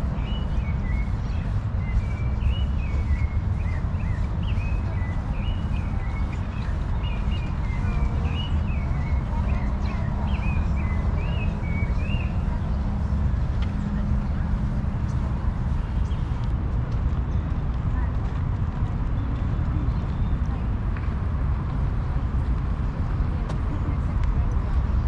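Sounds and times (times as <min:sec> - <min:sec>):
bird chirping: 0:00.0 - 0:13.1
steady low rumble: 0:00.0 - 0:25.0.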